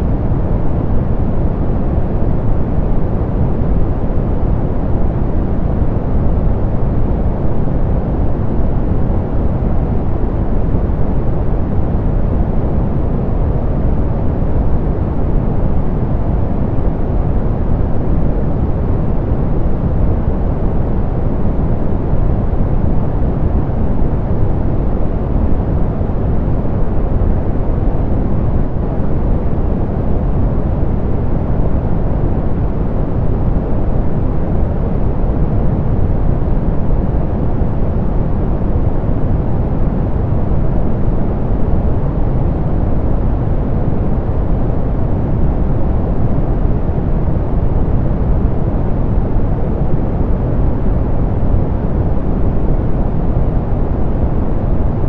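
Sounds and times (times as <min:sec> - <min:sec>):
soft pink noise hiss: 0:00.0 - 0:55.0.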